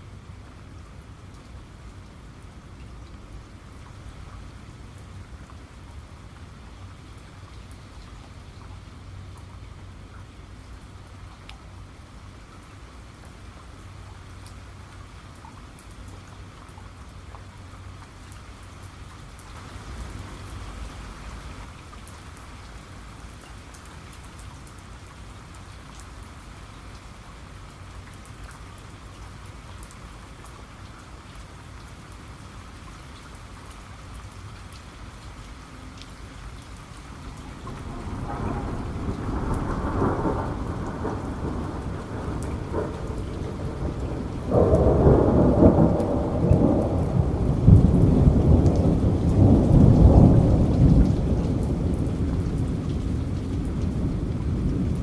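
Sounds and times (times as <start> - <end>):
steady rain: 0.0 - 55.0
thunder rumbling: 37.2 - 55.0.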